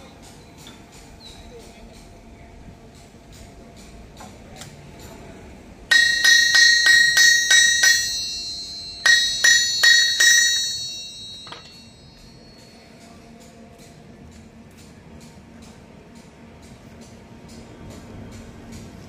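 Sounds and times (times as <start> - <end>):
hammer striking anvil: 5.9 - 12.7.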